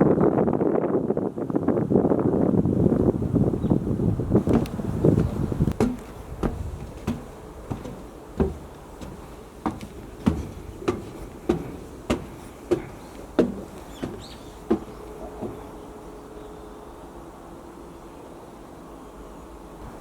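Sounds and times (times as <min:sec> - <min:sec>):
light background noise: 0:02.8 - 0:20.0
short knocks or thuds: 0:04.5 - 0:15.7.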